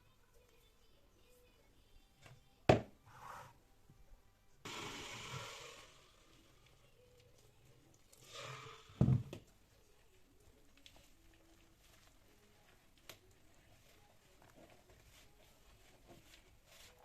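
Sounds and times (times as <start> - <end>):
hissing noise: 4.6 - 6.6.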